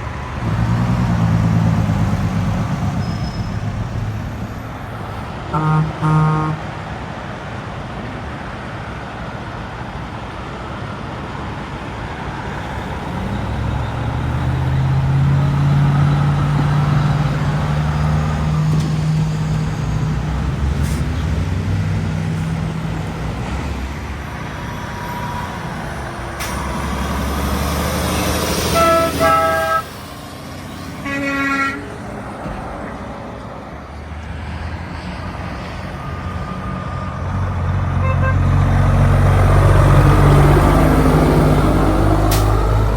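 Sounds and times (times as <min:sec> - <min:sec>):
truck diesel engine passing: 0:00.0 - 0:42.9
truck horn blasts: 0:05.5 - 0:06.8, 0:28.1 - 0:30.0, 0:30.7 - 0:32.0, 0:38.0 - 0:38.7.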